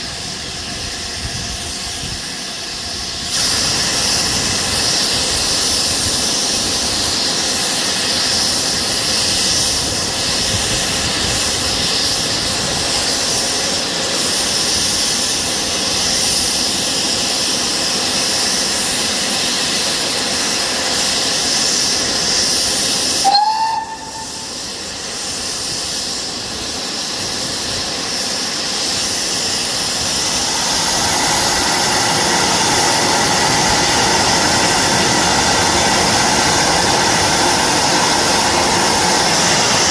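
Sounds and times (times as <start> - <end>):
steam locomotive hissing: 0.0 - 39.9
short rising tone: 23.3 - 24.6.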